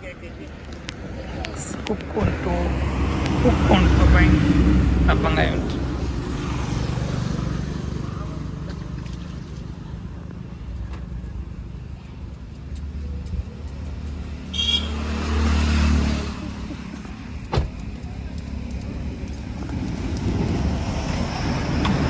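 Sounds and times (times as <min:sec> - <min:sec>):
car engine: 0:00.6 - 0:13.2.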